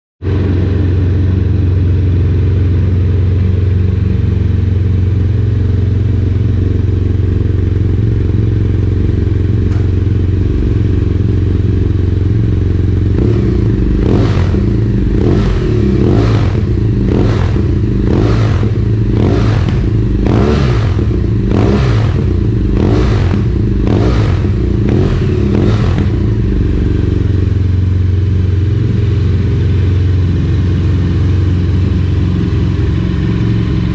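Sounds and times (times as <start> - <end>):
motorcycle engine idling and revving: 0.2 - 33.9.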